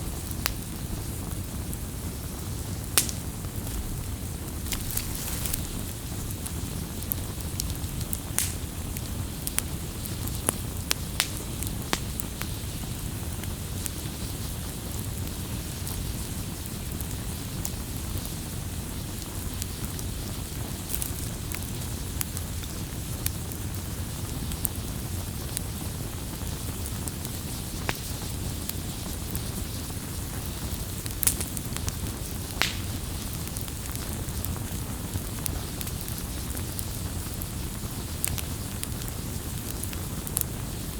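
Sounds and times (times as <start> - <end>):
campfire crackling and popping: 0.1 - 40.9.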